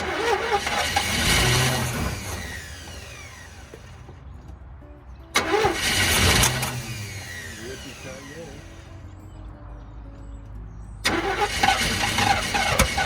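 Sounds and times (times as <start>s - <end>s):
engine cranking on starter: 0.0s - 4.0s, 5.3s - 8.8s, 11.0s - 13.0s.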